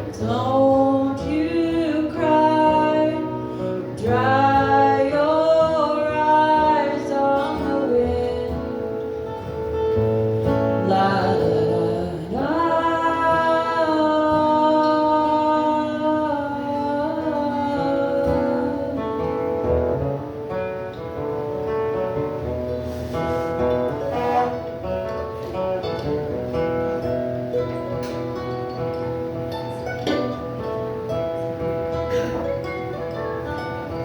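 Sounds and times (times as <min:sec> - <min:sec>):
person singing: 0:00.0 - 0:09.1, 0:10.7 - 0:19.6
acoustic guitar: 0:00.0 - 0:34.0.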